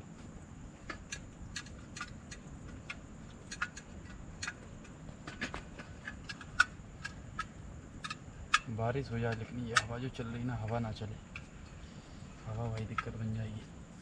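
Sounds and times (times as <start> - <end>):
sharp ticks and clicks: 0.8 - 11.5.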